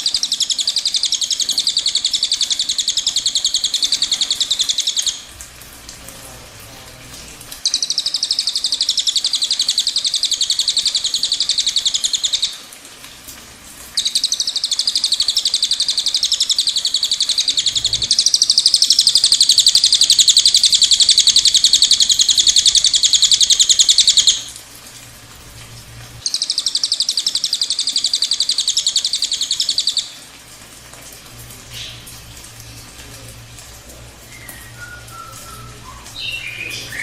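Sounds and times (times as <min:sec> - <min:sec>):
songbird trilling: 0:00.0 - 0:05.3, 0:07.6 - 0:12.5, 0:14.0 - 0:24.5, 0:26.2 - 0:30.1, 0:34.3 - 0:37.0.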